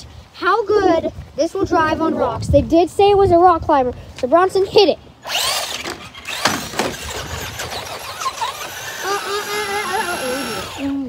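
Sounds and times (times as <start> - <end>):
electric motor whining: 5.2 - 11.0
wheels knocking on rocks: 5.3 - 10.8.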